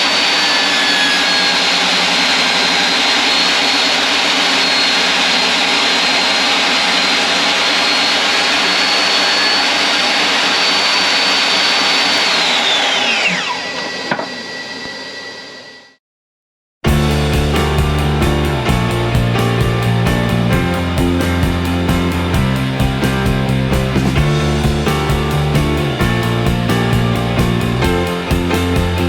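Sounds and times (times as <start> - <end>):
table saw whining: 0.0 - 16.0.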